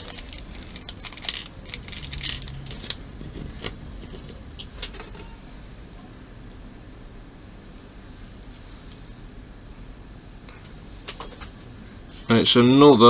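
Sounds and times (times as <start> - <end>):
small parts and screws rattling: 0.0 - 5.3.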